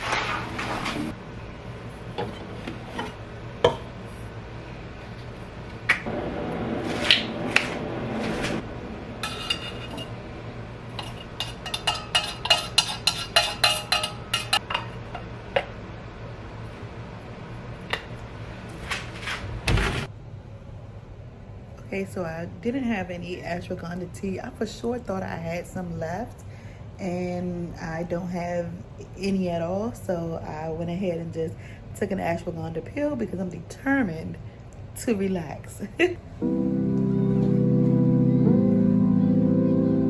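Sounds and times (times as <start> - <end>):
dishes and cutlery knocking: 2.2 - 3.9, 11.0 - 15.3.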